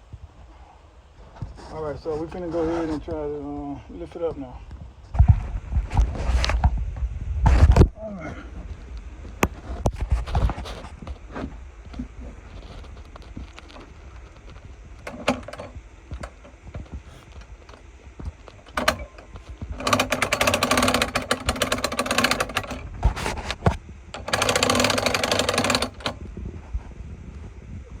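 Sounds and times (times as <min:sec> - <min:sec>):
steady machine hum: 0:00.0 - 0:28.0
lifting mechanism clattering: 0:13.6 - 0:26.2.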